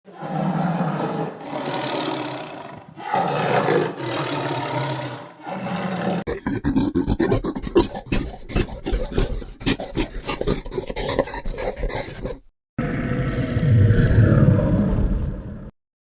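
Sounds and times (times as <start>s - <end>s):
lion roaring and growling: 0.1s - 15.7s
rapid rough animal pulses: 6.2s - 12.5s.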